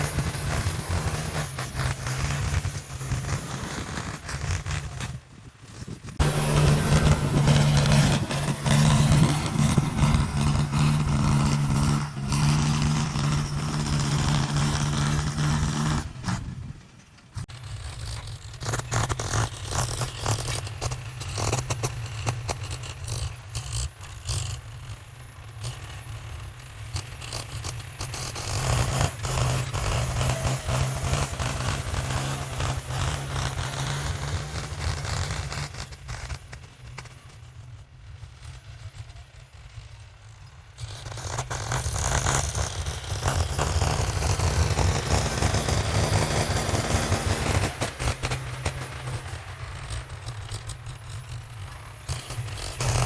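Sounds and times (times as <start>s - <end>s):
heavy machinery engine rumble: 0.0s - 21.3s, 24.8s - 53.0s
rattling and scraping: 0.0s - 22.5s.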